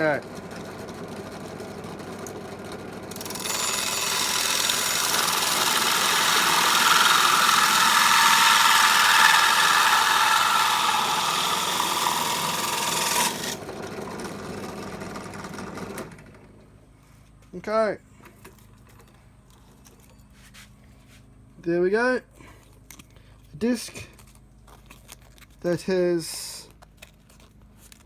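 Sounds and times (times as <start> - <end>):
drill motor running: 0.0 - 16.4
hole saw grinding polystyrene: 3.1 - 13.8.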